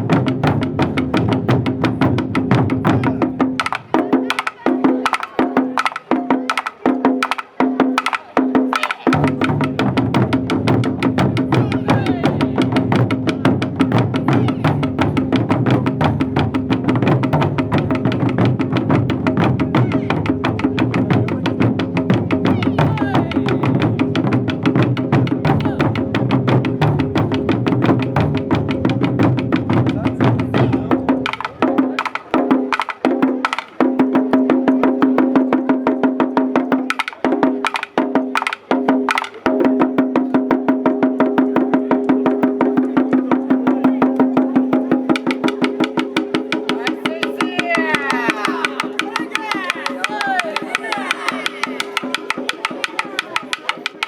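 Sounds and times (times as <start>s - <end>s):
taiko drum strikes: 0.0s - 34.4s.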